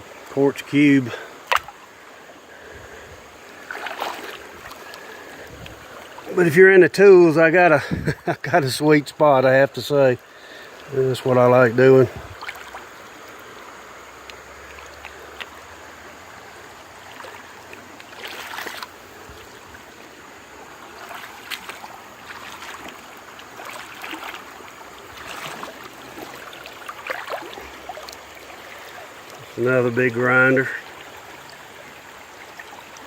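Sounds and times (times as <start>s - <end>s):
creek water over rocks: 0.0s - 33.0s
scuffs and splashes: 3.6s - 6.6s, 12.0s - 13.0s, 17.0s - 19.8s, 20.8s - 31.6s.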